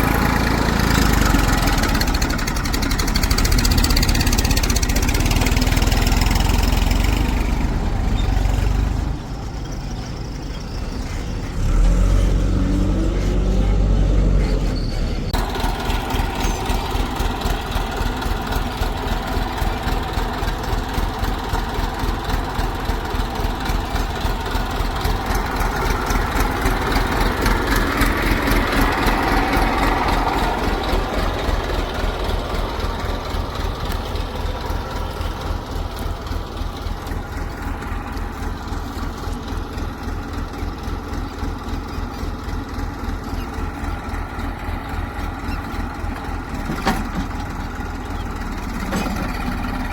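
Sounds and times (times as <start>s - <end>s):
heavy diesel engine running: 0.0s - 49.9s.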